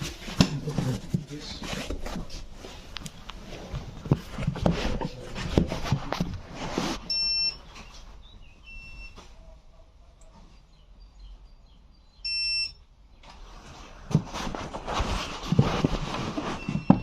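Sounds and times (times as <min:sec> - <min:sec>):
irregular clatter and knocks: 0:14.0 - 0:17.0.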